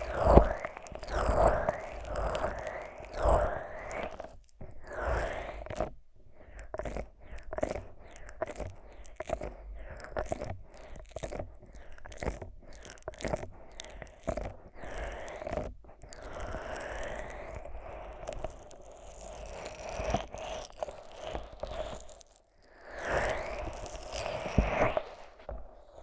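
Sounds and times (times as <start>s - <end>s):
sticky squelching strokes: 0.0s - 5.9s.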